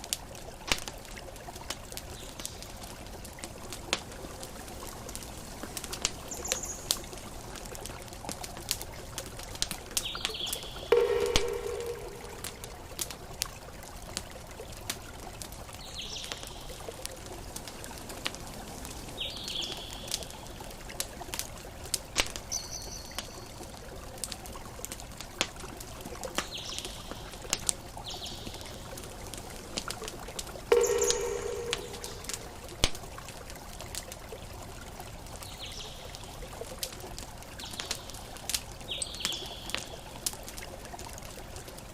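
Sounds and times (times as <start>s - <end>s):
soft wash of water: 0.0s - 39.0s
campfire crackling and popping: 0.0s - 41.9s.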